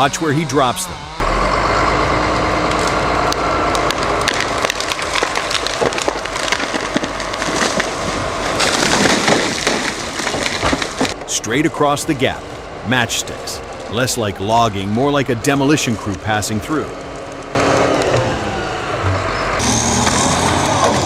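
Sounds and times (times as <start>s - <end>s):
steady whine: 0.0s - 21.0s
logs dropping and crashing: 2.7s - 11.3s.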